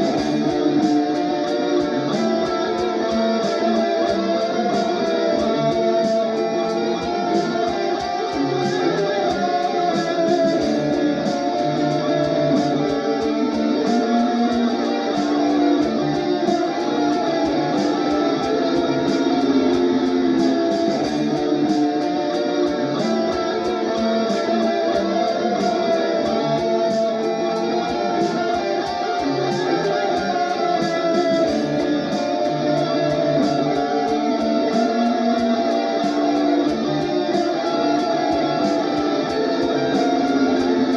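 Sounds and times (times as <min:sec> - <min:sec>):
drum machine beat: 0:00.0 - 0:40.9
electric guitar improvising: 0:00.0 - 0:40.9.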